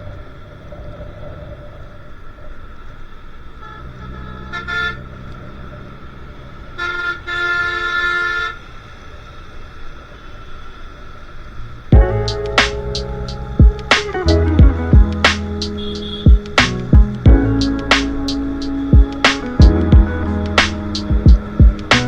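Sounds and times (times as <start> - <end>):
traffic and road noise: 0.0 - 22.0
vehicle horn honking: 3.6 - 5.3, 6.8 - 8.7, 15.7 - 16.5
loud music: 12.0 - 22.0.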